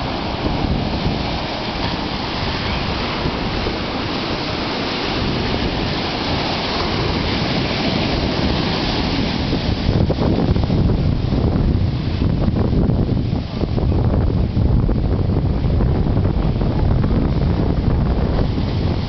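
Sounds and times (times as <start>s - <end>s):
ocean surf breaking: 0.0s - 19.0s
wind buffeting the microphone: 0.0s - 19.0s.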